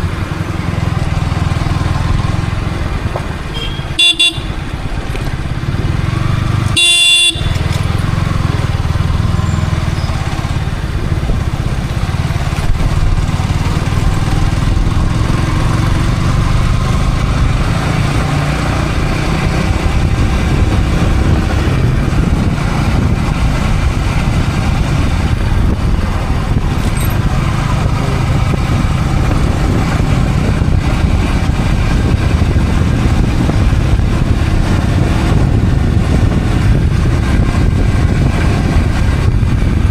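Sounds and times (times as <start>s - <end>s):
motorcycle engine running: 0.0s - 39.9s
vehicle horn: 3.5s - 4.8s, 6.7s - 7.8s.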